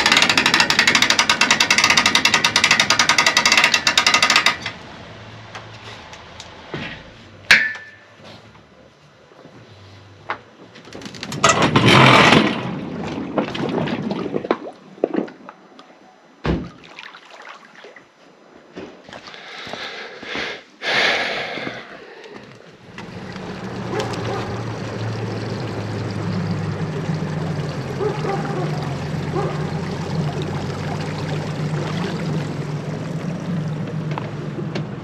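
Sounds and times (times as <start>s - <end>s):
boat engine humming: 0.0s - 5.5s, 22.4s - 35.0s
water noise: 11.9s - 18.2s, 22.7s - 35.0s
water splashing: 12.4s - 15.6s, 16.7s - 18.1s, 22.9s - 35.0s.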